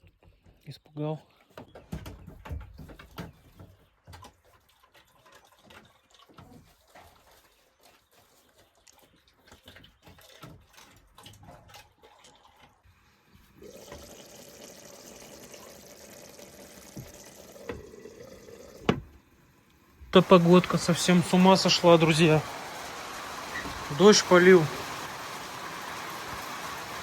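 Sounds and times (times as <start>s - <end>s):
water drips and clicks: 2.4s - 12.9s, 13.6s - 27.0s
heavy rain hissing: 20.0s - 27.0s.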